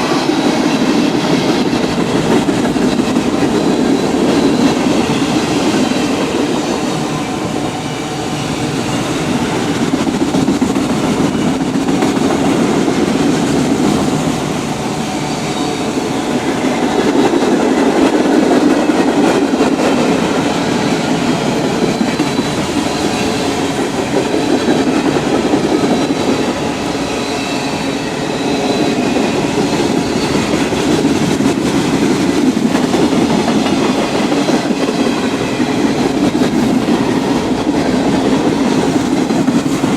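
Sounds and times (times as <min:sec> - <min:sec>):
train wheels clacking on rails: 0:00.0 - 0:39.9
high wheel squeal: 0:14.7 - 0:16.8, 0:25.7 - 0:31.0.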